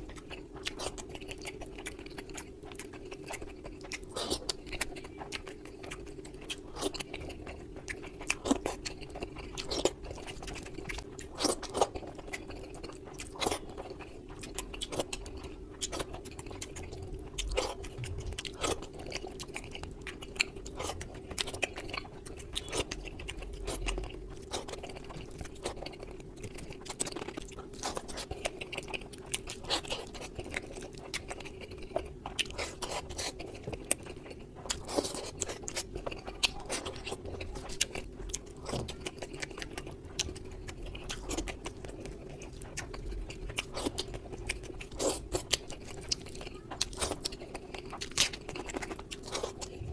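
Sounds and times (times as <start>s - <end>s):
chewing and crunching: 0.0s - 49.9s
low hum: 16.3s - 19.9s, 49.6s - 49.9s.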